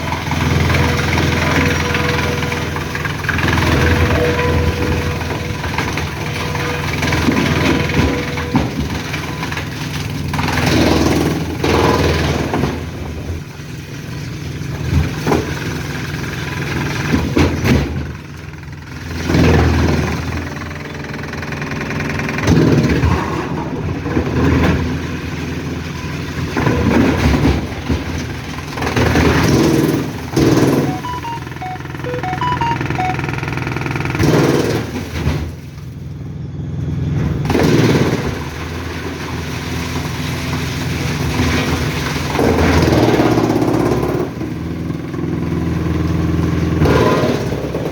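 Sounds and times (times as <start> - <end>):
heavy machinery diesel engine: 0.0 - 30.3.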